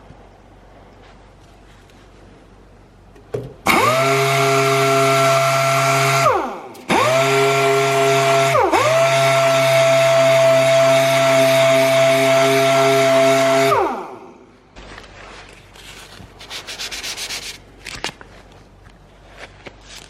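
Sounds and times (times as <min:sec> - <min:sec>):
power sander whining: 0:03.7 - 0:14.2.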